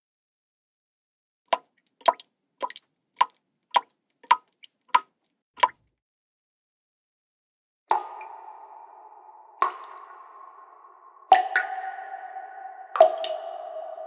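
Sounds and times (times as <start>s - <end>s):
water drops dripping: 1.5s - 5.8s, 9.6s - 14.0s.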